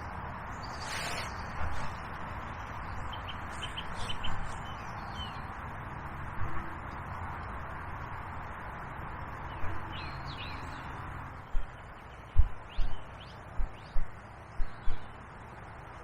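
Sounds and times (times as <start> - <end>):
small birds chirping: 0.4 - 5.7, 9.2 - 15.6
river water hissing: 0.5 - 2.6
dull low thumps: 11.5 - 15.1.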